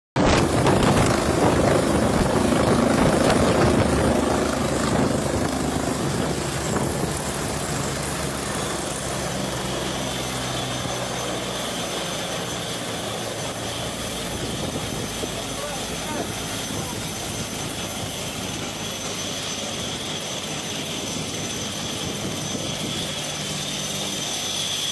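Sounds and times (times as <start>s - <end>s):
helicopter rotor and engine: 0.2s - 24.9s.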